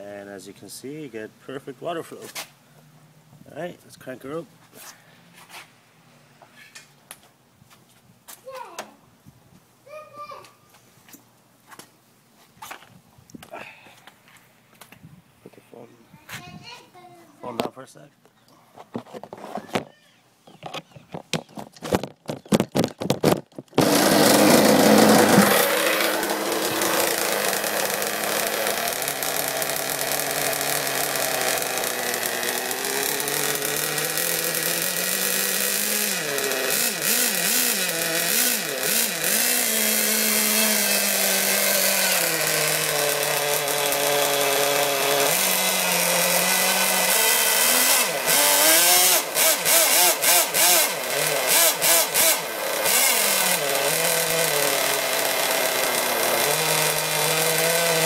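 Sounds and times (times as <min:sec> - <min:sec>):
model boat engine revving: 0:23.8 - 0:58.0.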